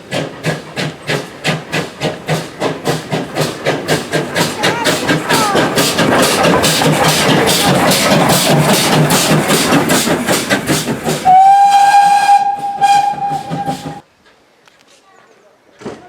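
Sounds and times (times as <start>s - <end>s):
steam locomotive exhaust beating: 0.0s - 14.1s
steam whistle blast: 11.2s - 14.0s.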